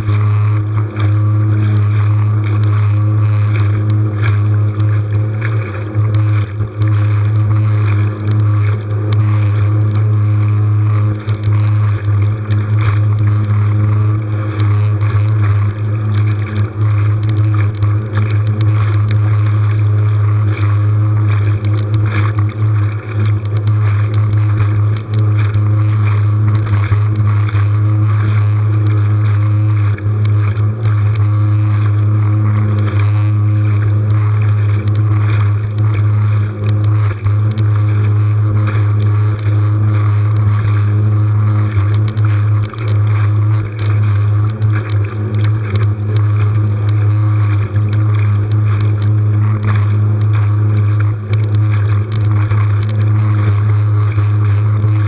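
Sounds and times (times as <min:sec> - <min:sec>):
small motor running: 0:00.0 - 0:55.0
water noise: 0:00.0 - 0:55.0.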